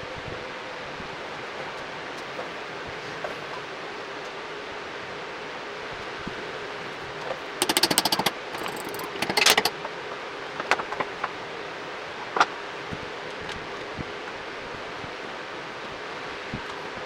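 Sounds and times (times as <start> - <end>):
rapid mechanical clicking: 7.1 - 15.2.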